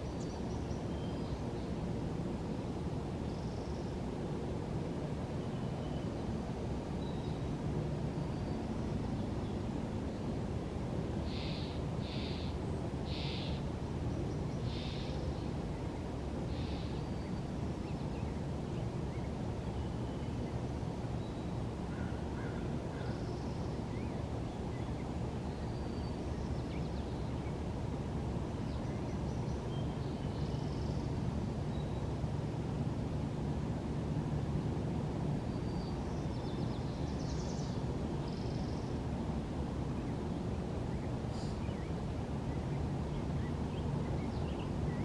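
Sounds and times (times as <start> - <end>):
faint bird chirps: 11.2 - 13.6, 14.3 - 15.4
bird calls: 11.3 - 13.6, 14.6 - 15.2.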